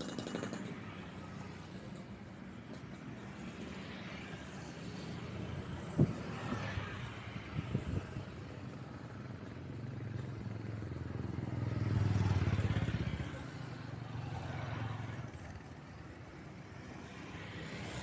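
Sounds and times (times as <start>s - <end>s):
vehicle engine passing by: 11.4s - 13.4s.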